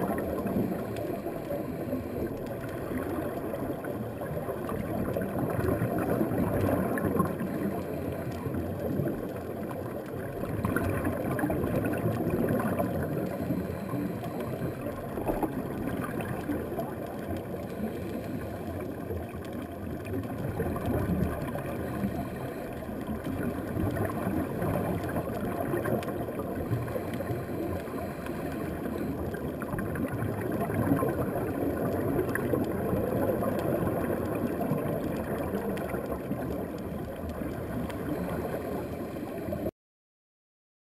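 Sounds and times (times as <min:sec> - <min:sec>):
diver's exhaled bubbles gurgling: 0:00.0 - 0:39.7
muffled underwater rumbling: 0:00.0 - 0:39.7.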